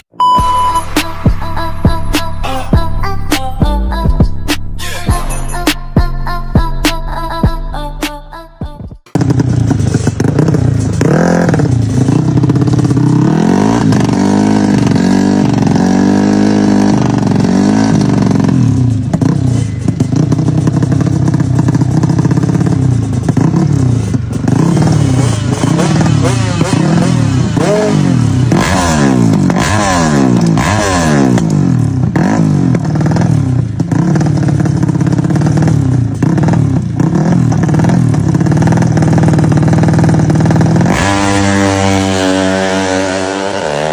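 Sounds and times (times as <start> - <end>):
motorcycle engines revving hard: 9.1 - 43.9.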